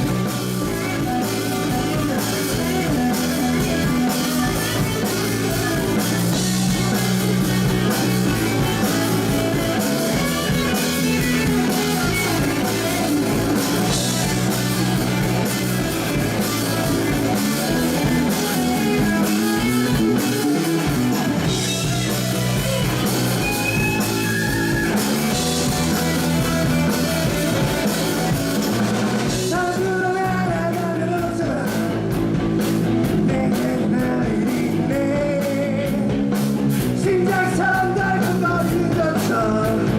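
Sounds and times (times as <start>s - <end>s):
bass guitar: 0.0s - 39.9s
drum kit: 0.0s - 39.9s
electric guitar: 0.0s - 39.9s
person singing: 29.3s - 32.2s, 33.1s - 36.2s, 36.9s - 39.9s.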